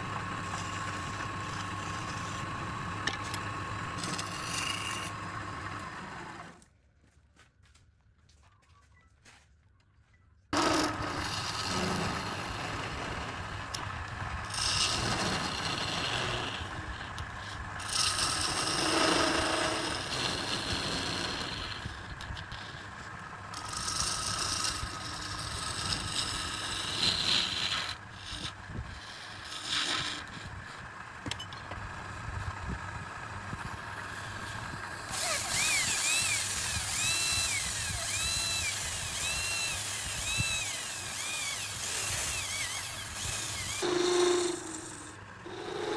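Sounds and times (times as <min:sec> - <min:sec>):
power tool whine: 0:00.0 - 0:06.6, 0:10.6 - 0:45.9
tool cutting spinning wood: 0:00.0 - 0:06.6, 0:10.6 - 0:45.9
steady hum: 0:31.2 - 0:45.9.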